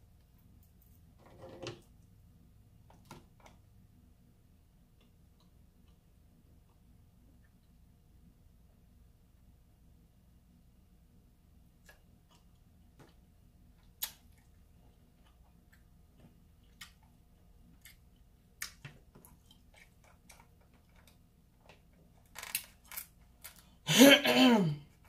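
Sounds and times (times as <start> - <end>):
faint low hum: 0.0 - 25.0
crab shell cracking: 19.6 - 23.7.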